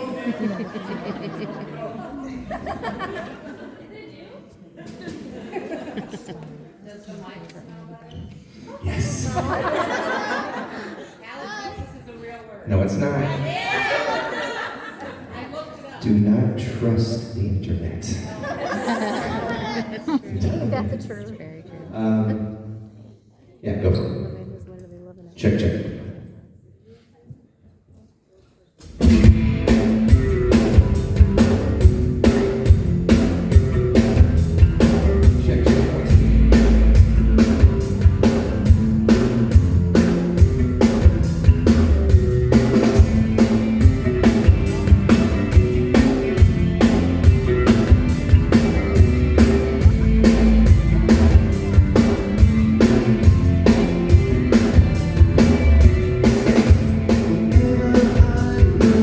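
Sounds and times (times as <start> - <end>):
bass guitar: 28.8 - 59.0
drum kit beat: 28.8 - 59.0
electric guitar: 28.9 - 59.0.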